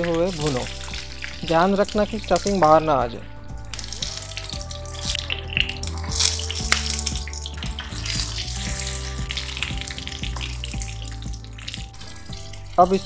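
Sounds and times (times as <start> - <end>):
background music: 0.0 - 13.0
vegetables sizzling in hot oil: 3.9 - 12.5.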